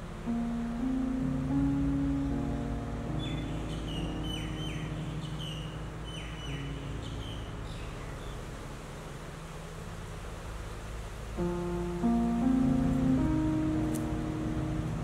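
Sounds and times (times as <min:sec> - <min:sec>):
soft background music: 0:00.0 - 0:15.0
bird chirping: 0:02.0 - 0:08.6.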